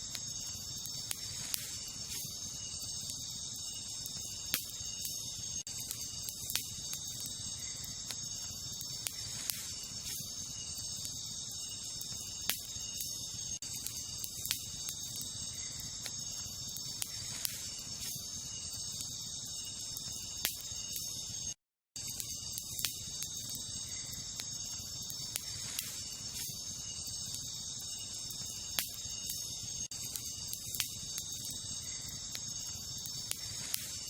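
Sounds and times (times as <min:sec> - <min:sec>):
campfire crackling: 0:00.0 - 0:34.0
night insects chorus: 0:00.0 - 0:34.0.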